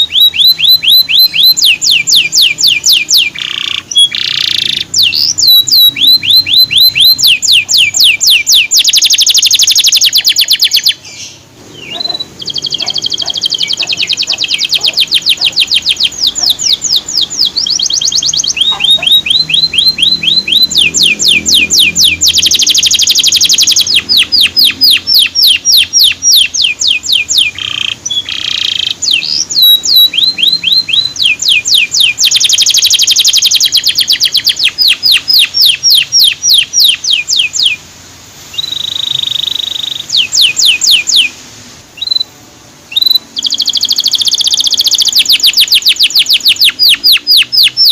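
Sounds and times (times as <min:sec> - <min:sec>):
canary trilling: 0:00.0 - 0:37.9, 0:38.5 - 0:41.4, 0:42.9 - 0:47.9.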